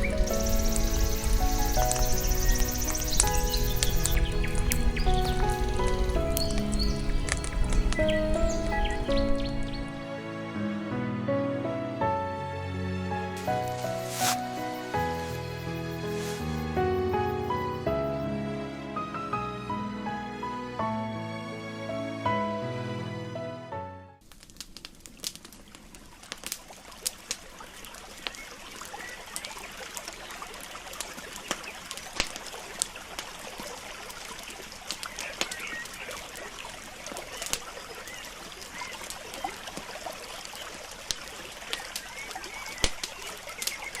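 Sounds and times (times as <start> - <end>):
campfire crackling and popping: 0.0 - 10.0, 24.3 - 27.5.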